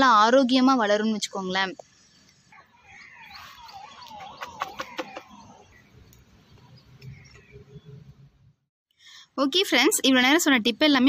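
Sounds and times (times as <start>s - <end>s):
bird chirping: 1.8s - 8.4s.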